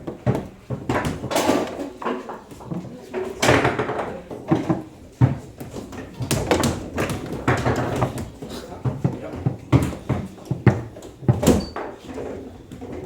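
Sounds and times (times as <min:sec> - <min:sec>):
table football knocks and clicks: 0:03.4 - 0:11.8.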